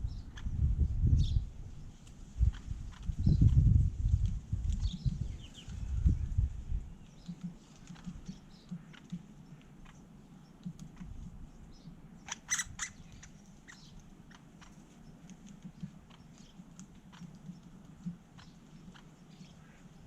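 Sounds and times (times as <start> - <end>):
woodpeckers pecking at nuts: 7.0 - 20.0.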